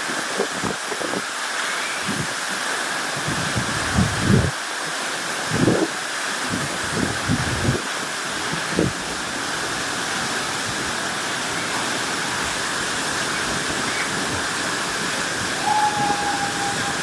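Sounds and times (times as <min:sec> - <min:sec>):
waterfall roaring: 0:00.0 - 0:17.0
thin whistle-like tone: 0:15.6 - 0:17.0.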